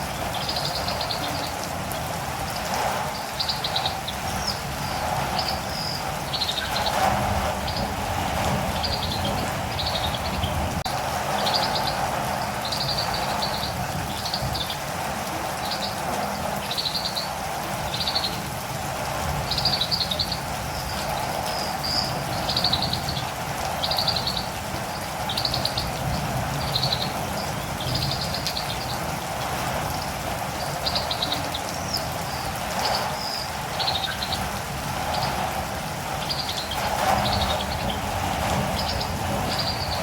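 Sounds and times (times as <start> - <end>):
steady rain falling: 0.0 - 40.0
bird chirping: 0.1 - 1.7, 3.1 - 14.8, 19.5 - 29.1, 30.6 - 35.4, 36.2 - 40.0.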